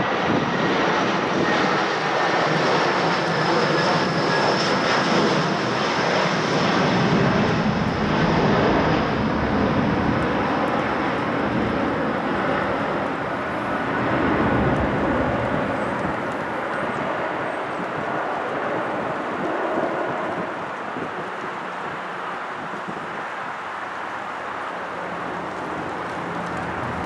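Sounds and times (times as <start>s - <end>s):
high jet whine: 0.0s - 27.0s
jet engine rumble: 0.0s - 27.0s.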